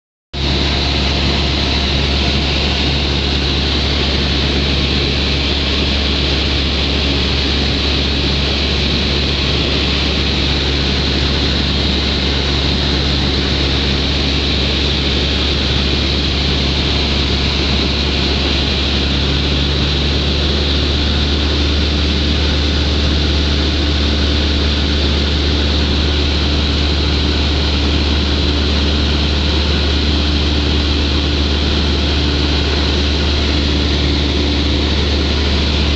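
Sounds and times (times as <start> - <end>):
propeller plane engine droning: 0.4 - 35.9.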